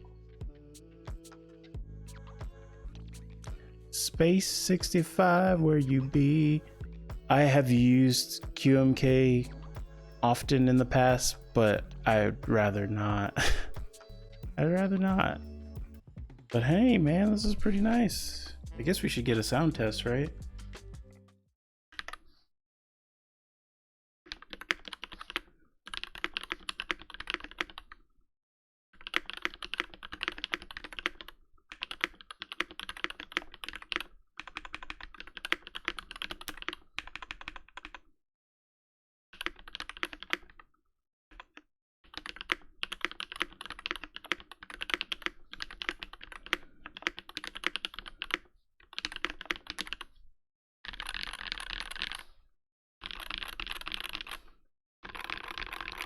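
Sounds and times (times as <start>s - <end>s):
fast typing on mechanical keyboard: 24.3s - 28.0s, 29.0s - 38.1s, 39.4s - 40.7s, 41.4s - 50.1s, 50.9s - 52.4s, 53.0s - 56.0s.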